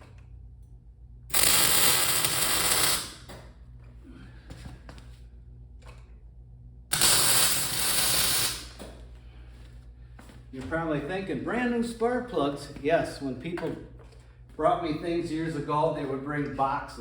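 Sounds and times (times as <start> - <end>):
low steady hum: 0.0 - 17.0
sizzling welding arc: 1.3 - 3.3, 6.9 - 8.8.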